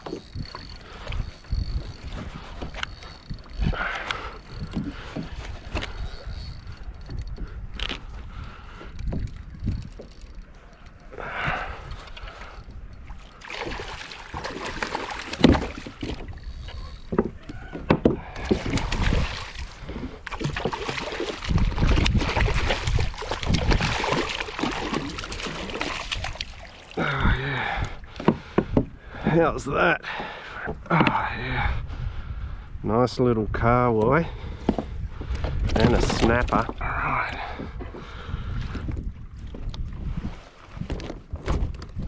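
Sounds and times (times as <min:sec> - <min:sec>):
water splashing: 0:00.0 - 0:07.2, 0:08.8 - 0:27.5
knocks and rattles on a kayak: 0:00.0 - 0:29.4, 0:30.1 - 0:31.3, 0:34.0 - 0:42.0.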